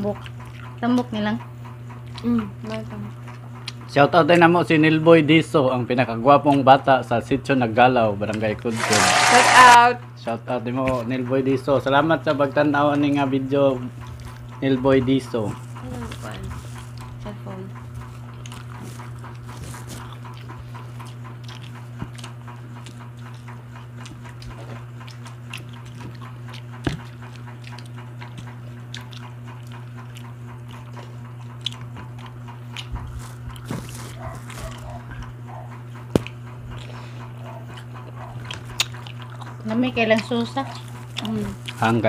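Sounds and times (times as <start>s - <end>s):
people chewing and lip smacking: 0.0s - 4.5s, 6.4s - 6.8s, 8.2s - 9.6s, 12.8s - 42.0s
steady low hum: 8.5s - 42.0s.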